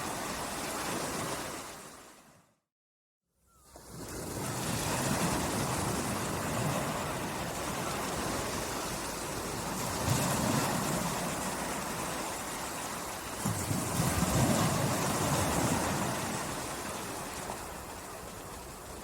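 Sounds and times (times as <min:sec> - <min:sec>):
sea waves washing on shore: 0:00.0 - 0:02.4, 0:03.8 - 0:19.0.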